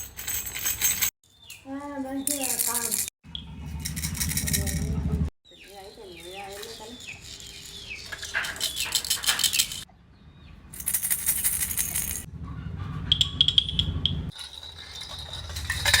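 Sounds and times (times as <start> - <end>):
baby rattle toys clattering: 0.0 - 1.2, 2.2 - 3.1, 3.8 - 5.0, 5.7 - 9.9, 10.8 - 12.3, 14.3 - 16.0.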